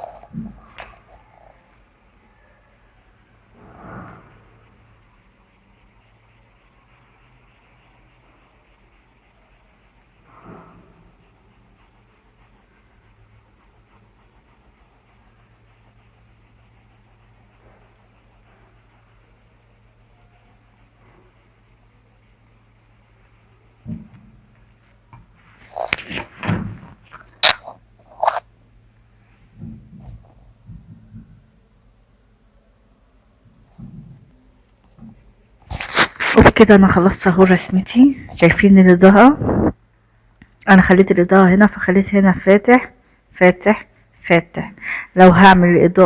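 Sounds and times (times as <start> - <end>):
pencil rubbing on paper: 0.0 - 24.4, 35.7 - 37.9
faint steady hum: 0.0 - 46.0.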